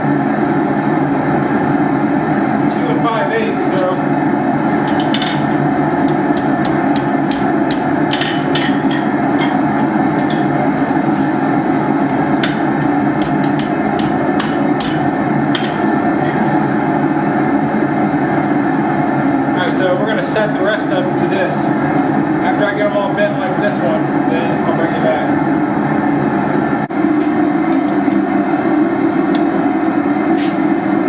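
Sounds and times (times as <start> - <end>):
hammer striking steel: 4.8 - 10.8, 12.4 - 16.1.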